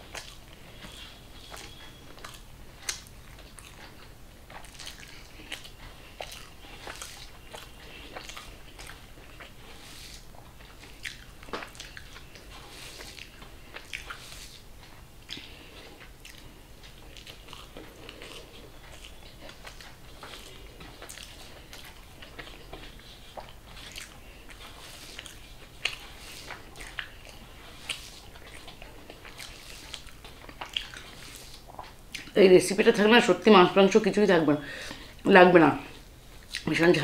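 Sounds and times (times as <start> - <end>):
fingers squishing rice: 0.0 - 32.3
wet chewing and lip smacks: 0.0 - 32.4, 36.0 - 36.8.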